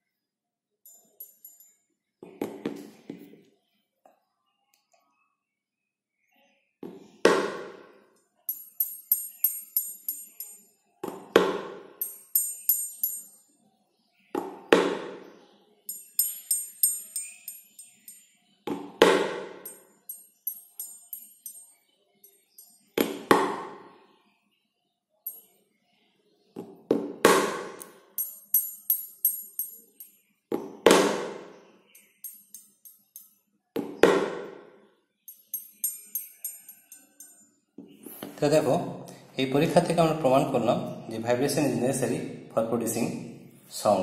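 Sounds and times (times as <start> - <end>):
percussion loop: 0.9 - 1.7, 8.5 - 10.7, 11.3 - 13.3, 15.9 - 21.7, 27.4 - 30.1, 32.0 - 33.3, 35.3 - 37.4.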